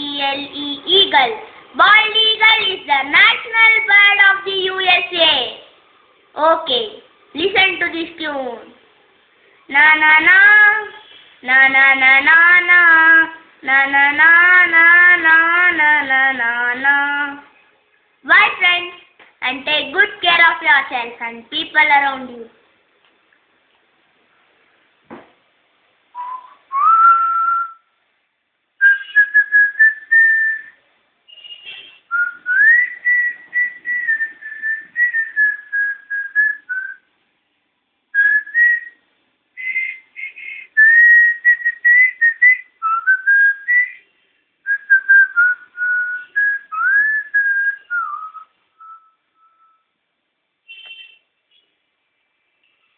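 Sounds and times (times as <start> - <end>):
person whistling a melody: 26.2 - 27.9, 28.8 - 31.5, 32.1 - 37.0, 38.2 - 39.0, 39.6 - 44.1, 44.7 - 49.9.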